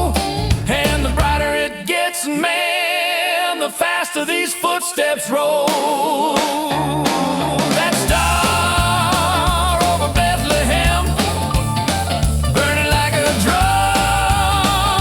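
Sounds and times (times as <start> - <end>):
stepping bass line: 0.0 - 1.6, 6.7 - 15.0.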